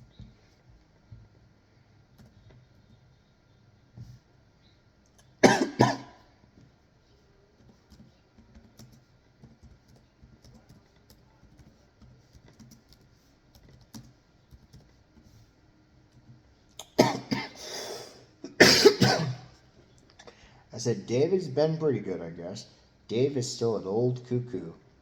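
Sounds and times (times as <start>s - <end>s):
person coughing: 5.4s - 6.2s, 16.8s - 19.5s.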